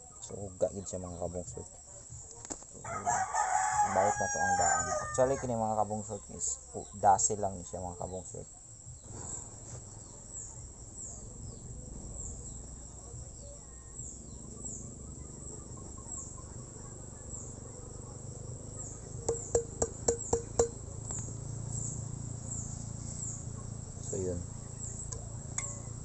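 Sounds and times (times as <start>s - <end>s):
insect chirping: 0.0s - 26.0s
sharp metallic taps: 19.2s - 21.3s, 25.1s - 26.0s.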